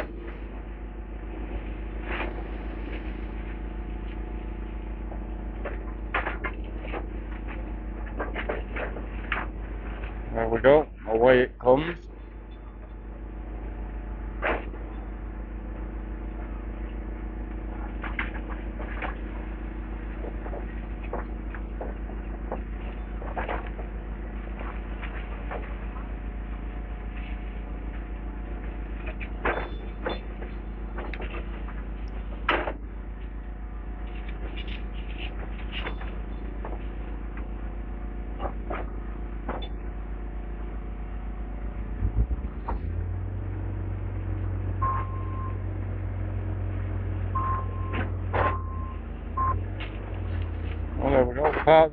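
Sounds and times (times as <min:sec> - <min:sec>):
excavator diesel engine running: 0:00.0 - 0:51.9
debris knocks and clunks: 0:05.6 - 0:09.6, 0:20.1 - 0:26.1.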